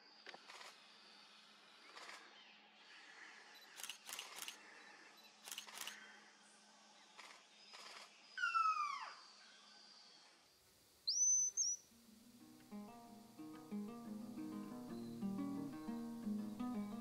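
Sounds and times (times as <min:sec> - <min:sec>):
faint forest background: 0:00.0 - 0:17.0
bird whistled call: 0:08.4 - 0:09.2, 0:11.1 - 0:11.9.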